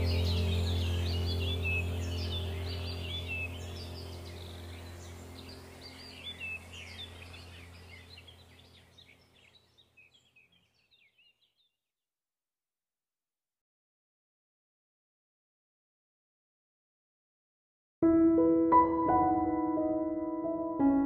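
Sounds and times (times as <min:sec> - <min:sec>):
low steady hum: 0:00.0 - 0:10.8
small birds chirping: 0:00.0 - 0:11.8.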